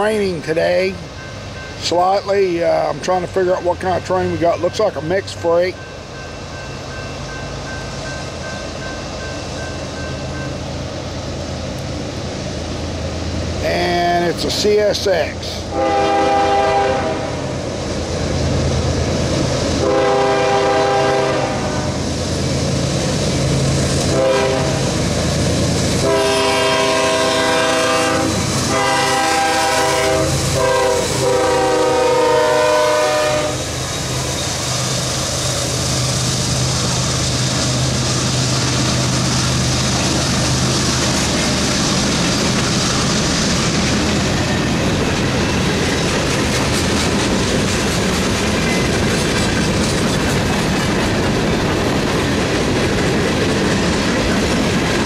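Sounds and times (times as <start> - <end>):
diesel engines humming: 0.0 - 55.0
locomotive air horn blasts: 15.7 - 17.4, 19.8 - 22.0, 24.1 - 24.9, 26.0 - 33.7
train wheels clattering on rails: 33.6 - 55.0.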